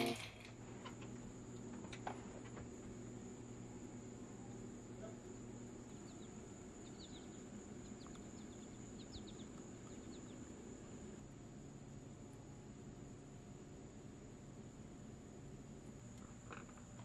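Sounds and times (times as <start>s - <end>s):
constant high hiss: 0.0s - 17.0s
small birds chirping: 3.3s - 11.2s.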